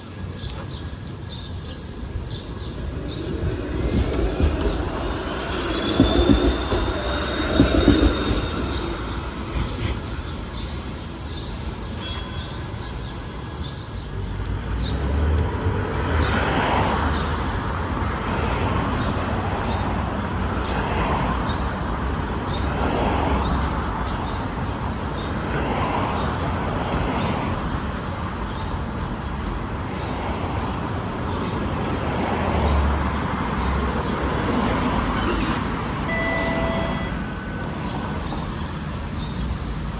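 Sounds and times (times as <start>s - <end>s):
streetcar rumbling: 0.0s - 39.9s
streetcar wheel squeal: 0.6s - 12.8s, 26.8s - 39.3s.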